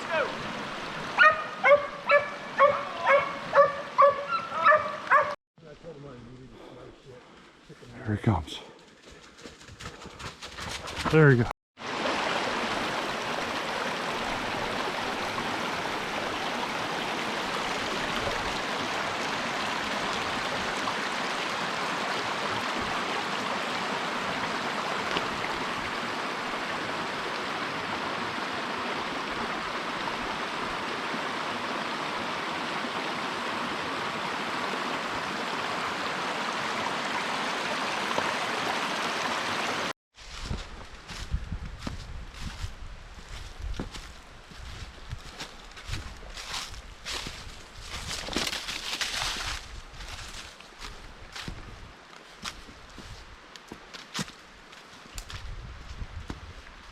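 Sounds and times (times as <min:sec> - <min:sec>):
stream water rushing: 0:00.0 - 0:05.4, 0:11.8 - 0:39.9.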